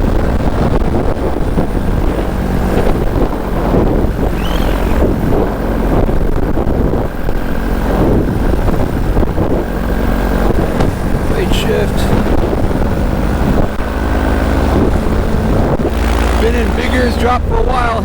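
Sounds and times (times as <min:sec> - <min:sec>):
paramotor engine running: 0:00.0 - 0:18.0
wind buffeting microphone: 0:00.0 - 0:18.0.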